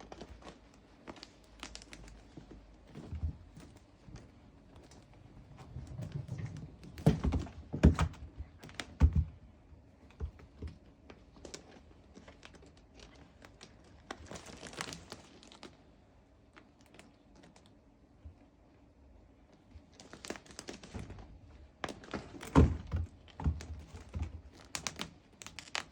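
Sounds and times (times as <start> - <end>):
knocks and thumps: 5.4 - 10.9.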